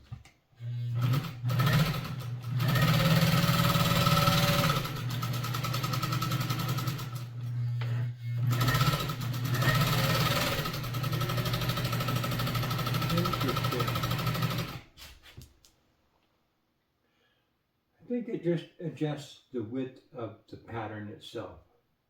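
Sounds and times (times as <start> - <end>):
sewing machine running: 0.6 - 14.9.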